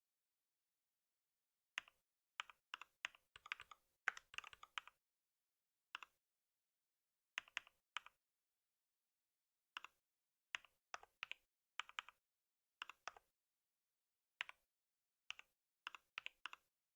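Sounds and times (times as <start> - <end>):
typing on computer keyboard: 1.8 - 5.0.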